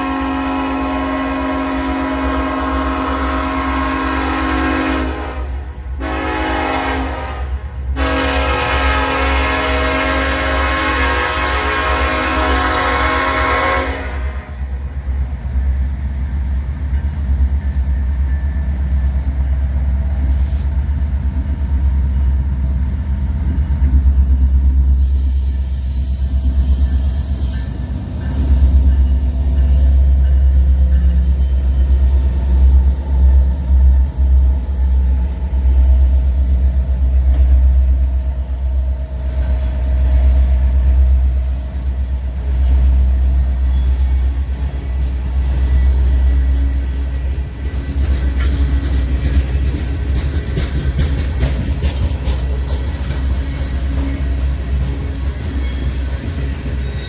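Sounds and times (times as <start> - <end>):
train rolling past: 0.0 - 57.0.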